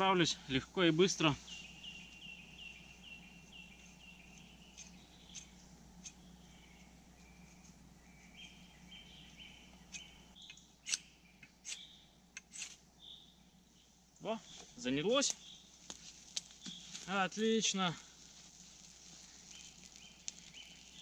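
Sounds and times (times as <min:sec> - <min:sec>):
axe blade scraping ferrocerium rod: 0:10.8 - 0:12.8.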